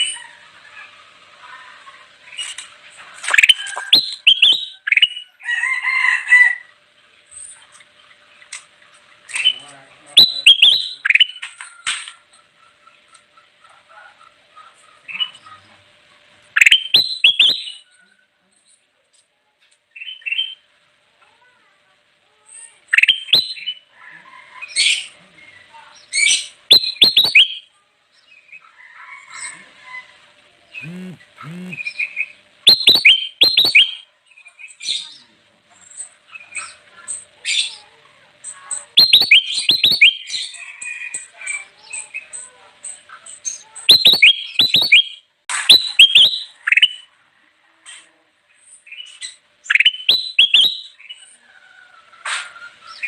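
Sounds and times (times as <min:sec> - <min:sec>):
bird whistled chirps: 0:03.4 - 0:05.3, 0:16.6 - 0:17.8, 0:26.7 - 0:27.6, 0:32.7 - 0:34.0, 0:39.0 - 0:40.4, 0:43.9 - 0:47.0, 0:49.7 - 0:51.0
bird warbled phrase: 0:09.4 - 0:11.4, 0:26.7 - 0:27.6, 0:30.7 - 0:34.1, 0:38.8 - 0:40.5.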